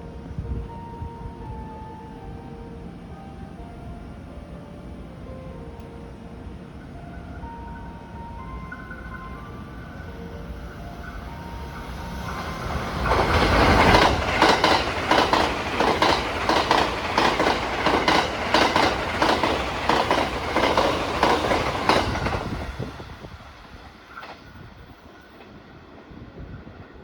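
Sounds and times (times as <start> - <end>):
train wheels clacking: 10.9 - 25.6.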